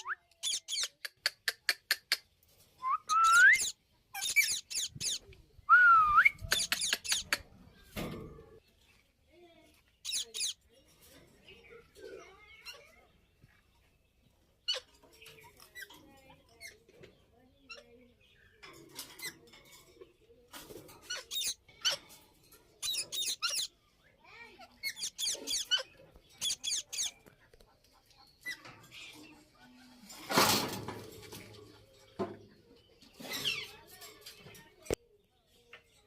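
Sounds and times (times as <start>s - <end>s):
parakeets chirping: 0.0s - 1.0s, 3.1s - 5.3s, 6.4s - 7.4s, 10.0s - 10.6s, 21.0s - 22.1s, 22.8s - 24.0s, 24.6s - 27.4s.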